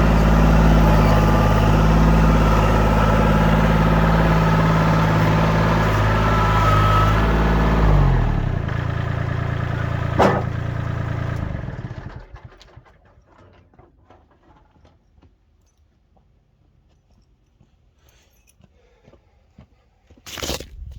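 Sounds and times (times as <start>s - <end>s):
tractor diesel engine shutting off: 0.0s - 14.6s.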